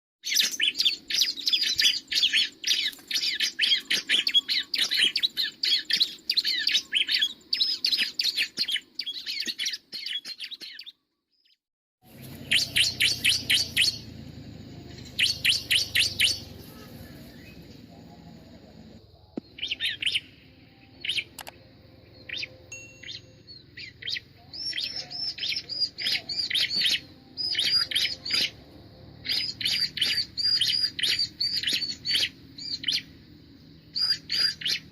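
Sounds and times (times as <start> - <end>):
bird chirping rapidly: 0.2 - 18.0, 19.4 - 33.2, 33.8 - 34.9
low steady background: 12.0 - 34.9.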